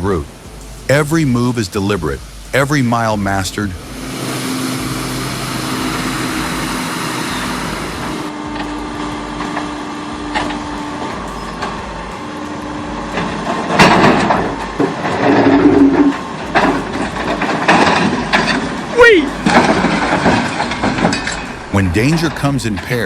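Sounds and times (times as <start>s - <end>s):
heavy truck droning: 0.0s - 23.0s
loud knocks and rattling: 8.4s - 21.7s.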